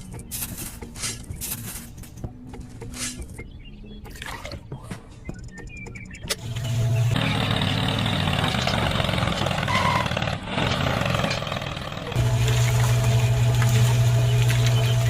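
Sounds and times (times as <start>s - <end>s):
small motor humming: 6.4s - 8.4s, 12.2s - 15.0s.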